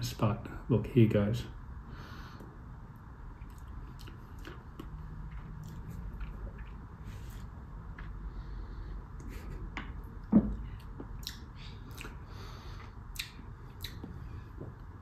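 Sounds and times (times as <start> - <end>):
wet lip and tongue smacks: 10.9 - 12.2, 13.1 - 14.2.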